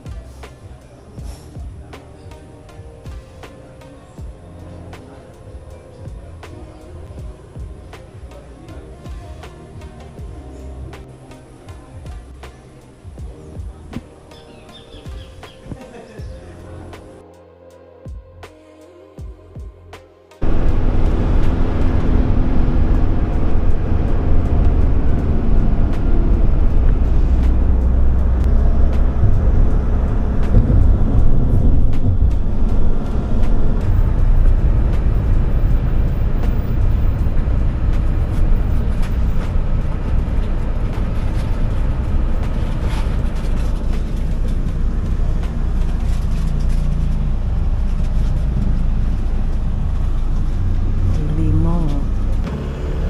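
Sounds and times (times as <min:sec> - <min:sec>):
road vehicle rumbling: 0:00.0 - 0:17.2, 0:20.4 - 0:53.0
faint music: 0:00.0 - 0:53.0.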